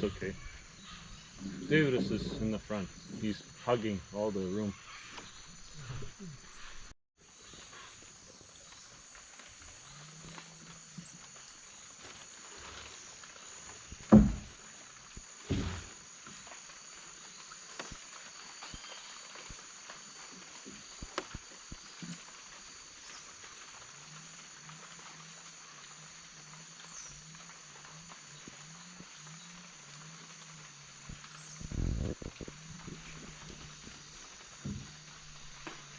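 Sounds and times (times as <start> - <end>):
frogs croaking: 0.0 - 35.9
insect drone: 0.0 - 35.9
loud knocks on boat: 14.1 - 14.6, 15.5 - 15.9, 34.6 - 35.1.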